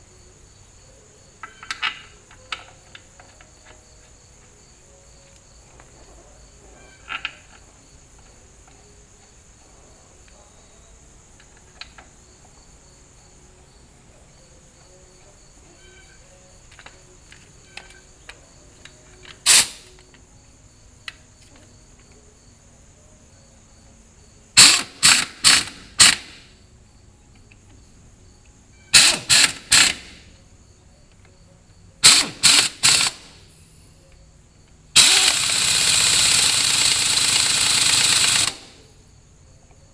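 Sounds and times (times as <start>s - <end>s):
crickets chirping: 0.0s - 39.9s
compressed air hissing bursts: 19.4s - 19.9s, 24.6s - 26.5s, 28.9s - 30.3s, 32.0s - 33.9s, 35.0s - 38.8s.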